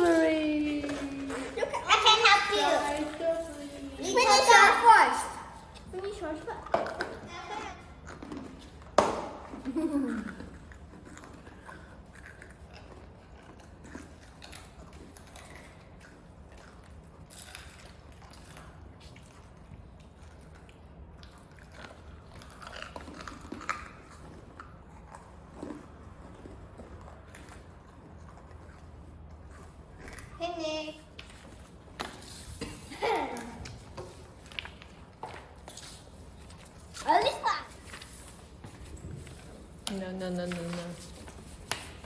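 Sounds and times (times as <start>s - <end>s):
chewing and crunching food: 10.1s - 30.4s.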